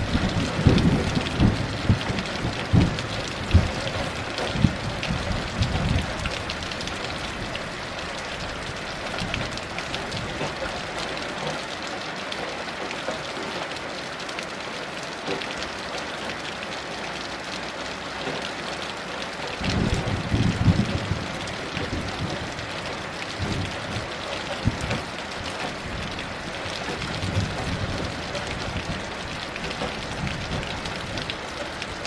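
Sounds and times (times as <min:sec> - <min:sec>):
thunder rumble: 0:00.0 - 0:10.5, 0:19.6 - 0:31.3
heavy rain falling: 0:00.0 - 0:32.0.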